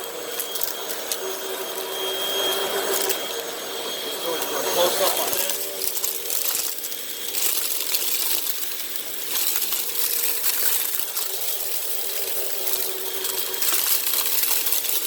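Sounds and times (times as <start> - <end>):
debris rattling through vacuum: 0.0 - 15.0
upright vacuum motor whine: 0.0 - 15.0.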